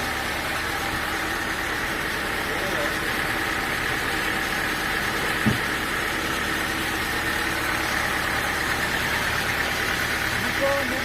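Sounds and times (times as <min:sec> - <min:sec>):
sawmill machinery droning: 0:00.0 - 0:11.0
short low thud: 0:05.4 - 0:05.7.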